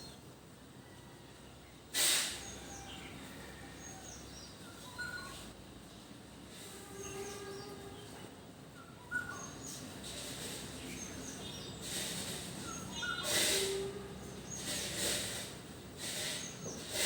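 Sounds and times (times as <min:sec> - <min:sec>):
hissing rushes of noise: 0:02.0 - 0:02.6
birds chirping: 0:10.7 - 0:13.4.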